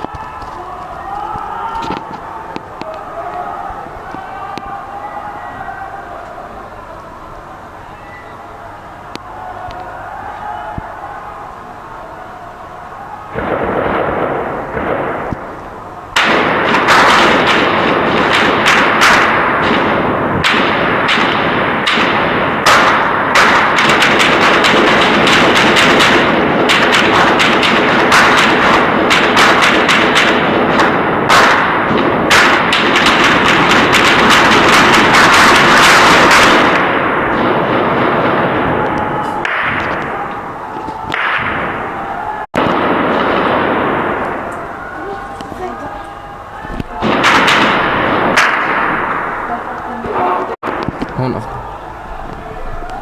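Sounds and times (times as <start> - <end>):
heavy rapid gunfire: 13.3 - 45.9, 46.9 - 51.8.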